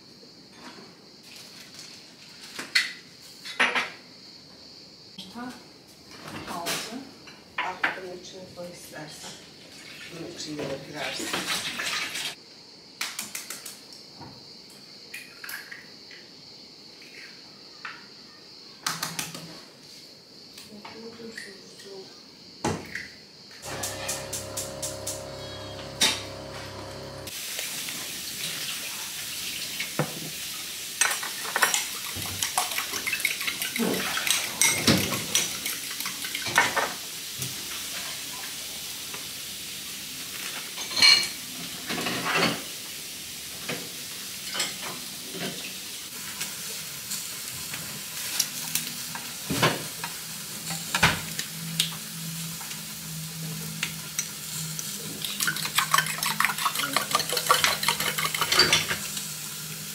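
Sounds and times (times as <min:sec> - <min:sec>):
dishes and cutlery clinking: 0:40.7 - 0:42.6, 0:55.2 - 0:59.2.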